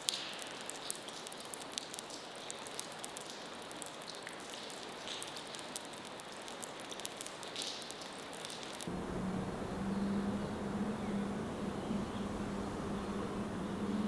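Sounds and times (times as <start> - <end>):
water dripping: 0.0 - 14.0
steady hiss: 8.0 - 14.0.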